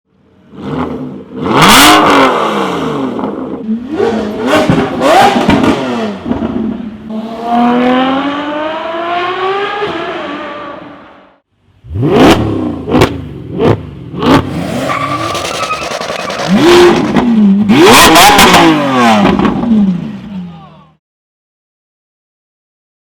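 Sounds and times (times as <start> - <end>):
car accelerating hard: 0.5 - 11.2, 11.8 - 20.2.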